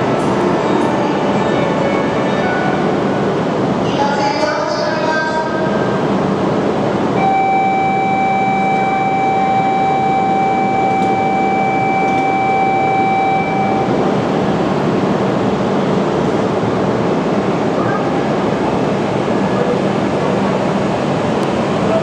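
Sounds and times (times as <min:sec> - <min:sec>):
train rushing noise: 0:00.0 - 0:22.0
steady high tone: 0:07.2 - 0:15.0.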